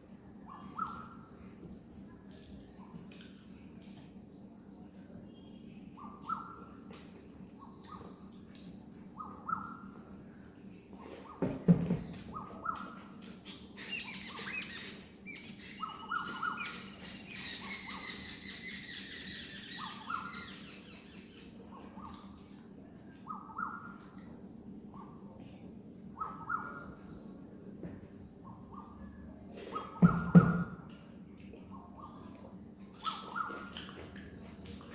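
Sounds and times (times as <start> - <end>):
birds calling: 0.5 - 1.3, 9.1 - 10.0, 10.9 - 22.5, 23.2 - 24.2, 26.2 - 27.2, 33.0 - 34.2
higher bird chirping: 12.3 - 22.2, 26.2 - 27.0.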